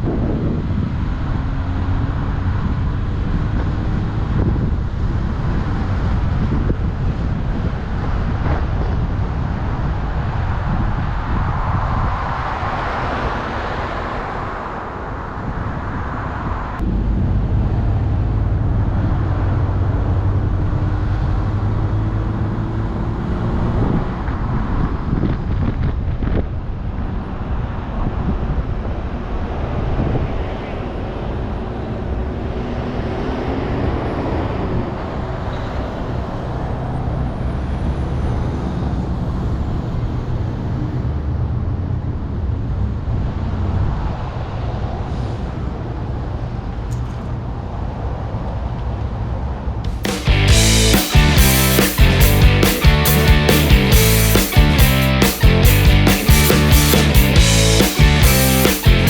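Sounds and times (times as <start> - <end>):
road noise: 0.0 - 59.0
car engine: 49.9 - 59.0.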